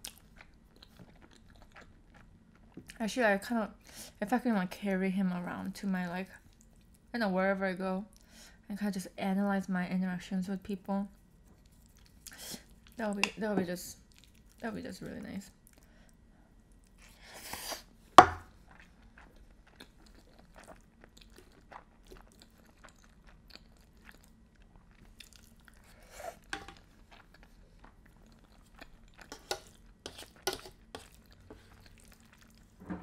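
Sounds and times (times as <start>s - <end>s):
chewing pasta: 0.0s - 3.0s, 6.3s - 7.1s, 11.1s - 13.1s, 13.9s - 32.8s.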